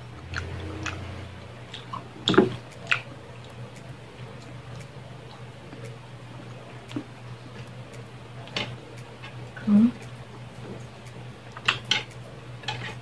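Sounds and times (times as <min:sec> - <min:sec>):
steady low hum: 0:00.0 - 0:13.0
wet chewing and lip smacks: 0:00.2 - 0:06.0.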